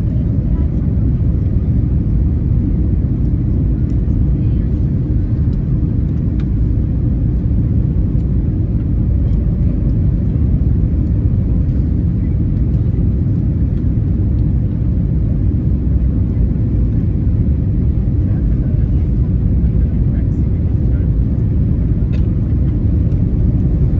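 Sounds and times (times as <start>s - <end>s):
aircraft engines and airflow rumble: 0.0s - 23.9s.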